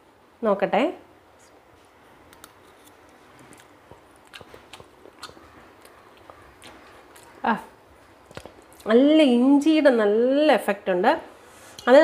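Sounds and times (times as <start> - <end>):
faint chewing with mouth clicks: 2.3 - 7.4, 8.0 - 8.9.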